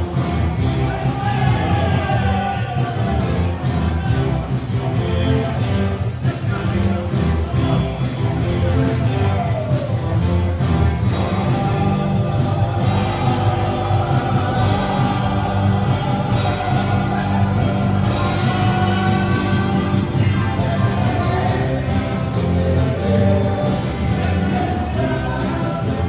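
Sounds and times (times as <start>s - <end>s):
live rock band playing: 0.0s - 26.0s
steady drum beat: 0.0s - 26.0s
person singing: 11.1s - 26.0s.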